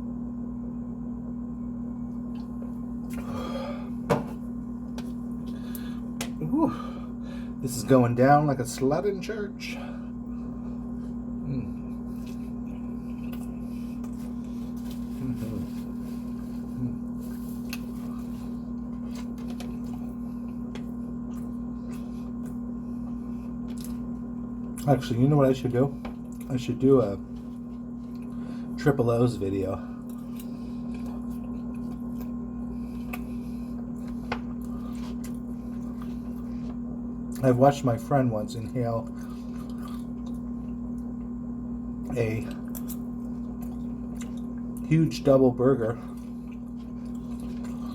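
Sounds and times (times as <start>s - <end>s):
steady low hum: 0.0s - 47.9s
person chewing: 10.3s - 24.9s, 27.3s - 28.8s, 30.0s - 37.4s, 39.1s - 41.3s, 42.5s - 44.8s, 46.1s - 47.9s
person humming mm: 11.4s - 12.0s, 15.1s - 15.8s, 16.7s - 17.1s.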